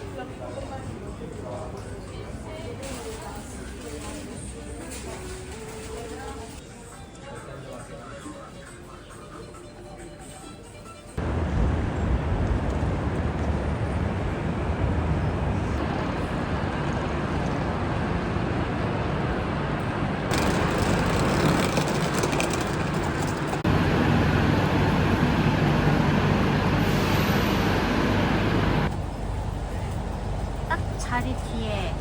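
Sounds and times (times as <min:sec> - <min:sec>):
train rumbling inside carriage: 0:11.2 - 0:32.0.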